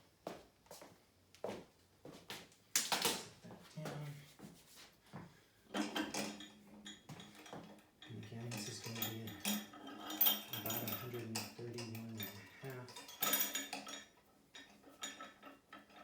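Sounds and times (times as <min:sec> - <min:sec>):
metal weight plates clinking: 0:05.8 - 0:16.0.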